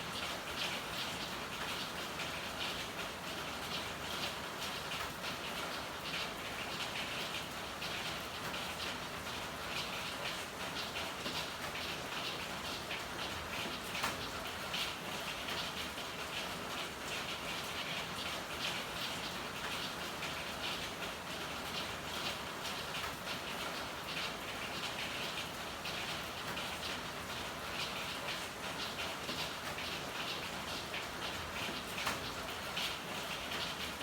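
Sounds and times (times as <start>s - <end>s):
rain on hard surfaces: 0.0s - 34.0s.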